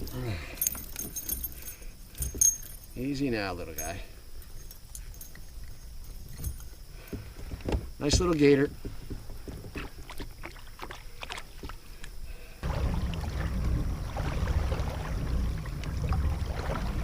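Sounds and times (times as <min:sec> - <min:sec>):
steady low rumbling: 0:12.6 - 0:17.0.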